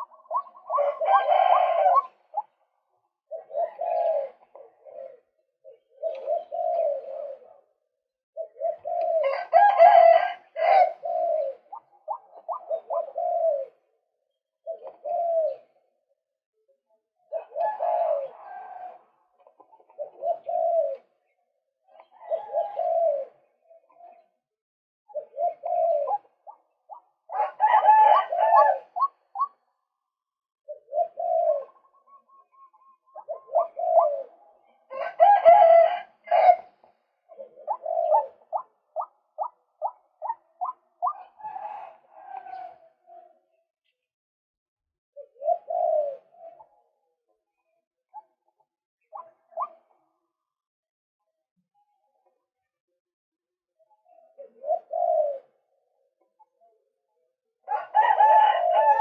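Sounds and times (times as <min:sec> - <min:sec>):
waterhen calling: 0:00.0 - 0:02.5.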